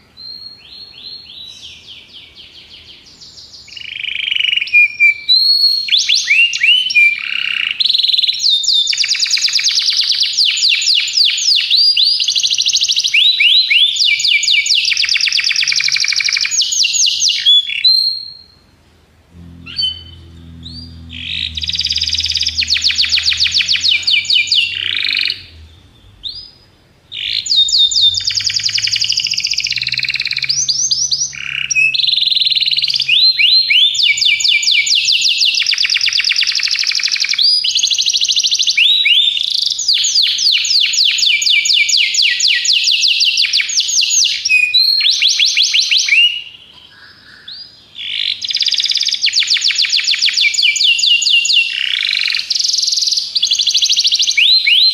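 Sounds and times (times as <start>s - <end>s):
canary singing trills: 19.3s - 54.9s.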